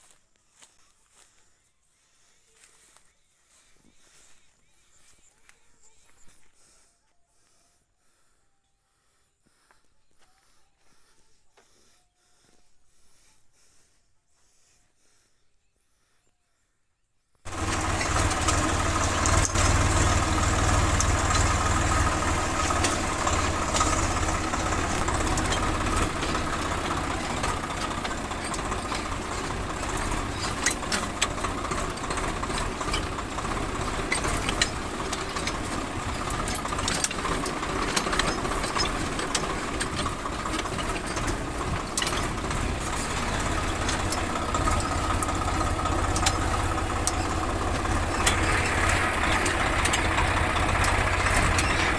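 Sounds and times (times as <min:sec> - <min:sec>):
tractor engine humming: 0:00.0 - 0:08.0, 0:17.4 - 0:51.9
clicks and rattles: 0:17.5 - 0:51.9.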